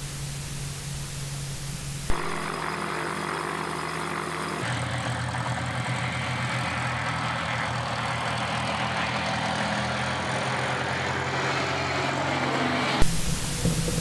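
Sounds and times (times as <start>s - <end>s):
light aircraft engine drone: 0.0s - 14.0s.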